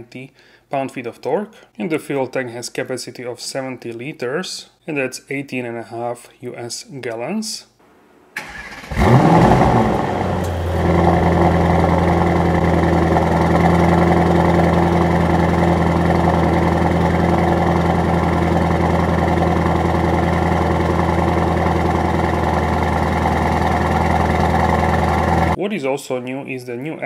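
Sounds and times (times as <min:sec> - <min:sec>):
car engine starting and idling: 0:08.4 - 0:25.6.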